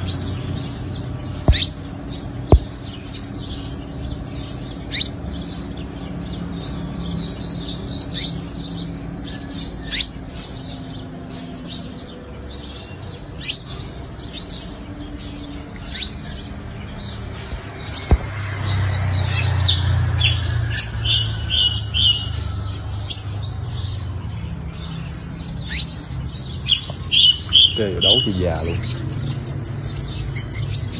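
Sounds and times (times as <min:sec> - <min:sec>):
sunbird chirping: 0:00.0 - 0:30.9
sharp knock: 0:01.5 - 0:01.7, 0:02.5 - 0:02.8, 0:18.1 - 0:18.3.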